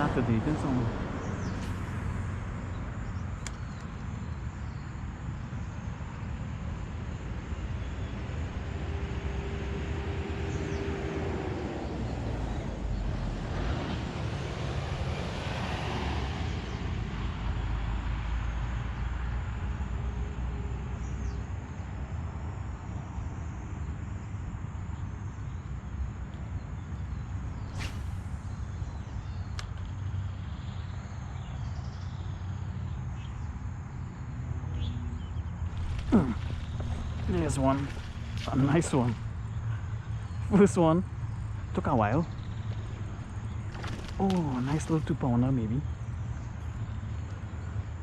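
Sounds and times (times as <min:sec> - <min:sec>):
vehicle passing by: 0:00.0 - 0:03.3, 0:08.8 - 0:18.3, 0:35.6 - 0:40.6
road traffic passing: 0:00.0 - 0:21.1, 0:27.3 - 0:31.4, 0:33.6 - 0:48.0.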